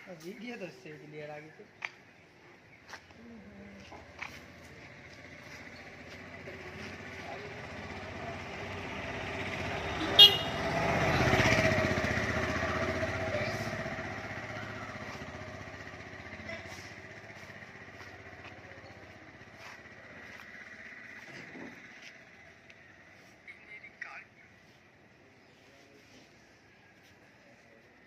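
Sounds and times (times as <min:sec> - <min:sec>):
motorcycle passing by: 0:03.3 - 0:23.4
horn toot: 0:09.9 - 0:11.2.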